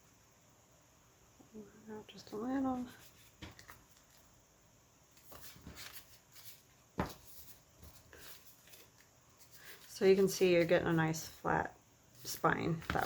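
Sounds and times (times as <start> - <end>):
paper rustles and taps: 3.4 - 4.2, 7.0 - 7.9, 12.7 - 13.0.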